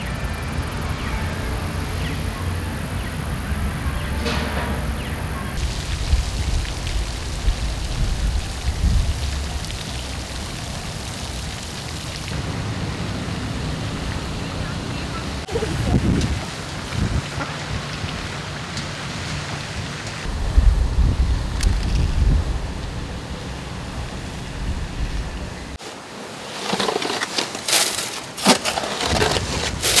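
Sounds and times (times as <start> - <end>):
water patter on pond: 0.0 - 15.5
wind rumbling on microphone: 0.0 - 18.3, 20.2 - 25.8.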